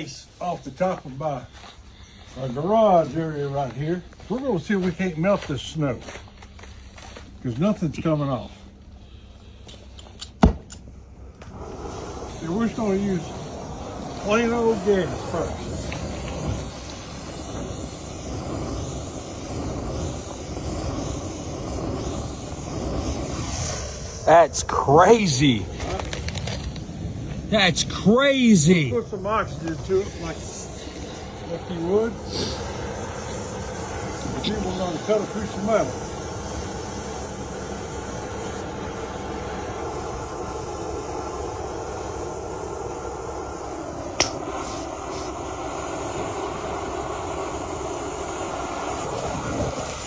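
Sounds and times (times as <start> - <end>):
cutting torch flame rushing: 11.2 - 50.0.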